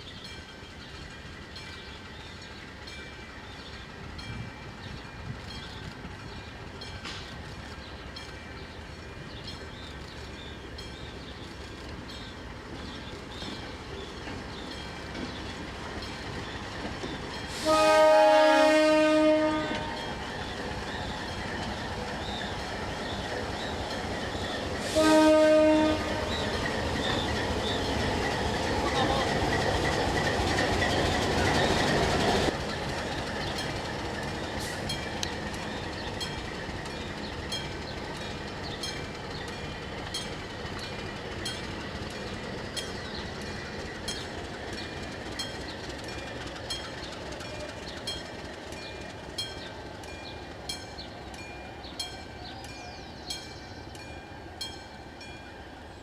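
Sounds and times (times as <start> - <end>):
train engine and rolling rumble: 0.0 - 56.0
wheels clicking over rail joints: 0.2 - 55.5
locomotive horn blast: 17.5 - 20.0, 24.8 - 26.5.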